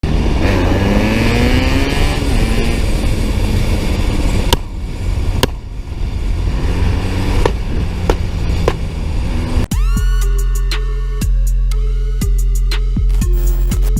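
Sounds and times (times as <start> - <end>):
vehicle engine revving: 0.0 - 9.7
road noise: 0.0 - 11.2.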